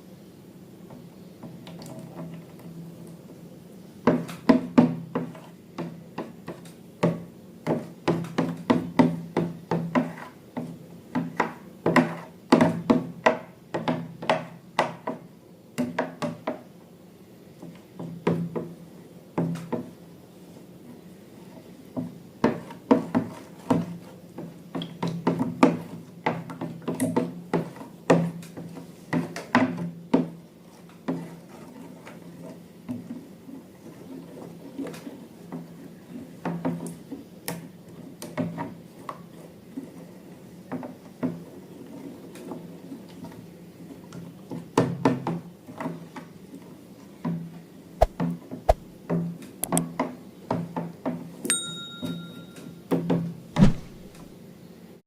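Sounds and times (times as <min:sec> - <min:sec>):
objects tapping and knocking: 0:04.0 - 0:16.7, 0:22.0 - 0:32.2, 0:36.4 - 0:39.2.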